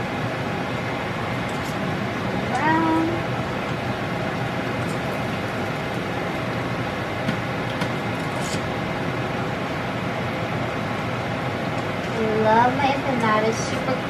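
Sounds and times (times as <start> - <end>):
spring rolls sizzling in oil: 3.8 - 8.8.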